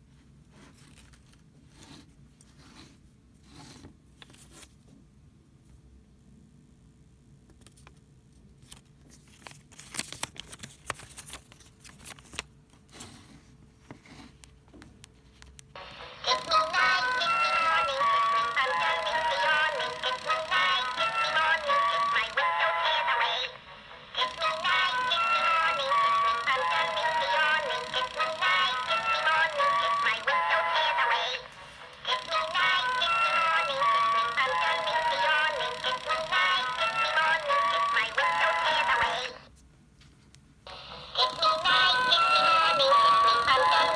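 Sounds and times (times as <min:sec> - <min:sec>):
crinkling rustles: 0:08.6 - 0:13.3
toy playing sped-up cartoon song: 0:15.8 - 0:39.4, 0:40.7 - 0:43.9.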